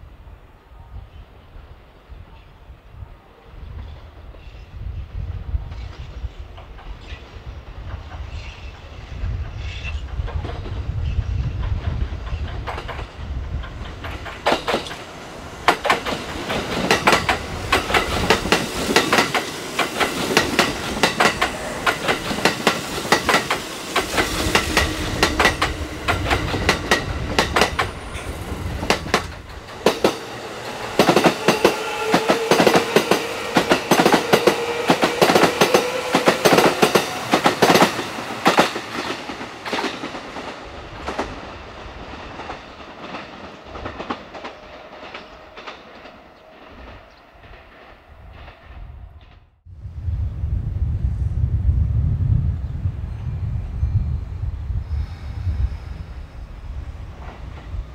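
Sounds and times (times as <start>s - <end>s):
train wheels clattering over rail joints: 7.8s - 30.3s, 30.9s - 41.4s.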